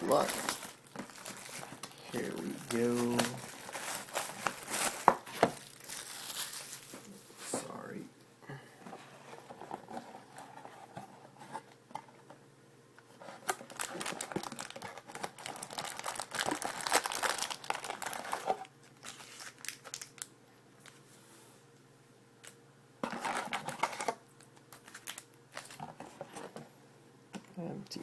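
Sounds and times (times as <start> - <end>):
plastic wrapping crinkling and tearing: 0.0 - 7.6, 13.2 - 21.0, 23.0 - 26.5.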